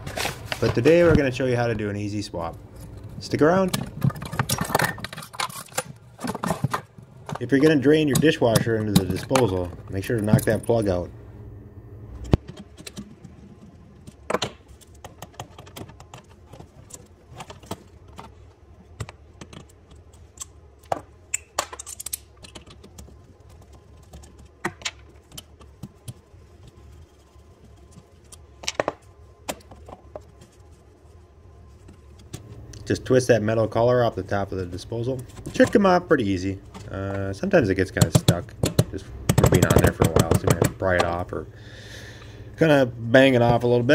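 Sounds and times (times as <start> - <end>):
hand tools clicking and knocking: 37.9 - 41.2.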